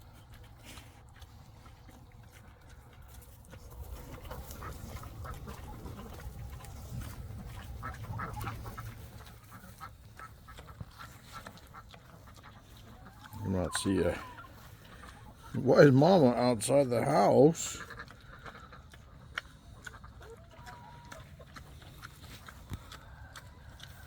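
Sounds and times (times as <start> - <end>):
duck quacking: 4.1 - 6.7, 7.4 - 18.9.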